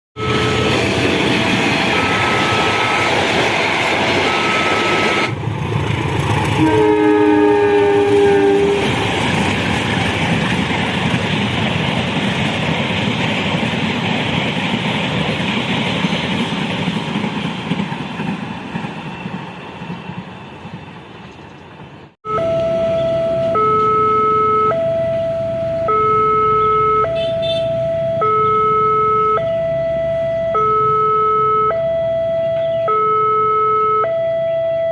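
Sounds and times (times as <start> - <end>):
locomotive horn chord: 0.2 - 1.0, 1.8 - 3.5, 4.1 - 5.4, 6.6 - 9.0, 22.3 - 29.4
level crossing warning tones: 0.2 - 5.4, 22.2 - 34.9
train running on rails: 0.2 - 26.2.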